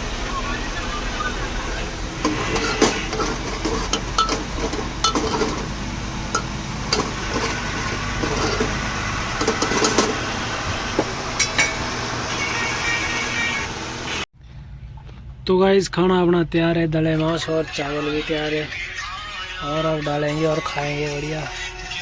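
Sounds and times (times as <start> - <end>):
low hum: 0.0 - 12.5
metal spoon scraping a pot: 2.2 - 10.4, 11.4 - 11.9.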